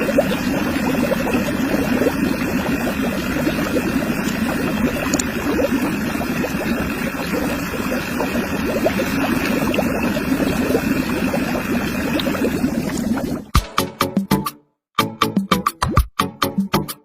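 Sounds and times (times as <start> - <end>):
pump motor running: 0.0 - 13.5
water gushing and splashing: 0.0 - 13.5.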